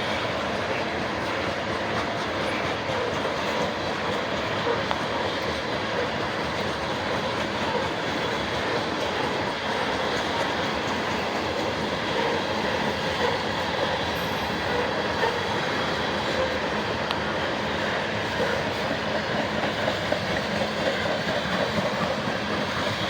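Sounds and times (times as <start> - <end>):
train cars rolling on rails: 0.0 - 23.0.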